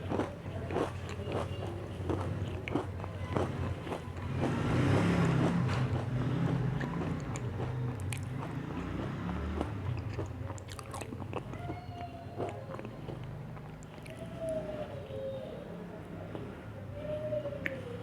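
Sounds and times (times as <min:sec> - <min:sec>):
chewing crunchy biscuits: 0:00.0 - 0:14.7
soft mouth sounds: 0:05.4 - 0:14.7, 0:17.5 - 0:18.0.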